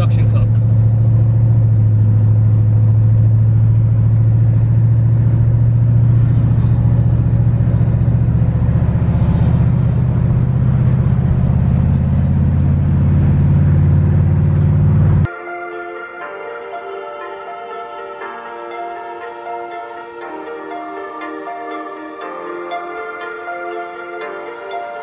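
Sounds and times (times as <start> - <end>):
car engine droning: 0.0 - 15.3
road noise: 0.0 - 15.3, 16.2 - 25.0.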